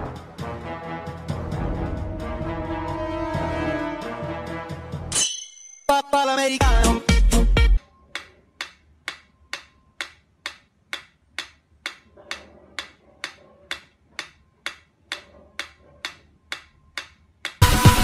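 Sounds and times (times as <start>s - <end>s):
loud music: 0.0s - 5.2s, 5.9s - 7.8s, 17.6s - 18.0s
metronome ticking: 6.7s - 17.6s.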